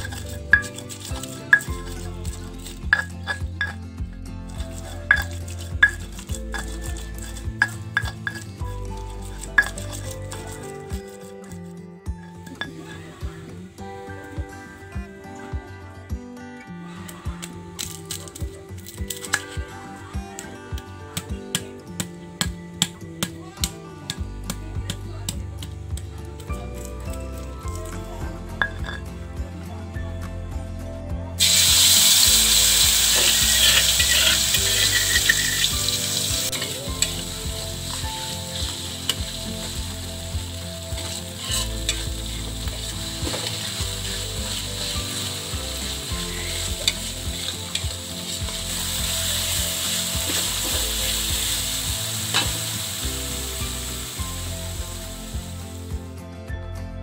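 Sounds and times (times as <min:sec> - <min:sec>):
stirring scraping and clicking: 0:00.0 - 0:13.1, 0:33.0 - 0:53.2
food frying in hot oil: 0:31.4 - 0:55.6.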